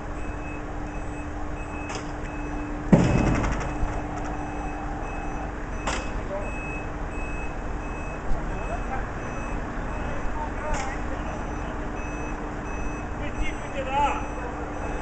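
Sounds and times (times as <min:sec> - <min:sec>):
reversing alarm beeping: 0:00.0 - 0:10.6, 0:11.2 - 0:15.0
engine hum: 0:00.0 - 0:13.6
loud metallic clank: 0:02.9 - 0:06.2.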